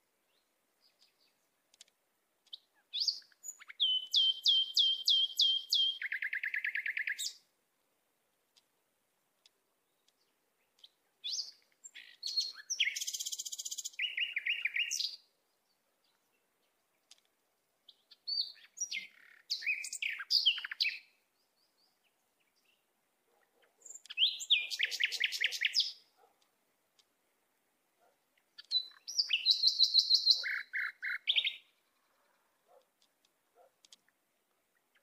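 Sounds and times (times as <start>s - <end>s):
songbird chirping and trilling: 0.0s - 7.5s, 9.4s - 35.0s.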